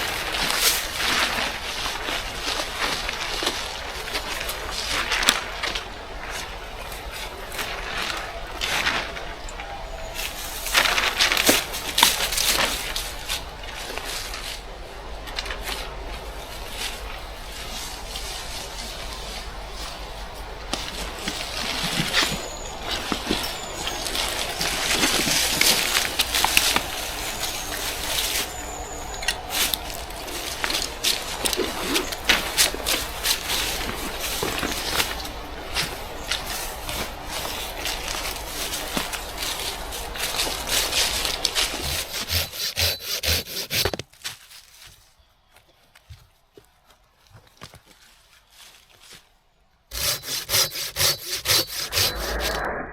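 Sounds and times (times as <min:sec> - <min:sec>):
hand saw cutting wood: 0:40.7 - 0:44.0, 0:49.9 - 0:52.6.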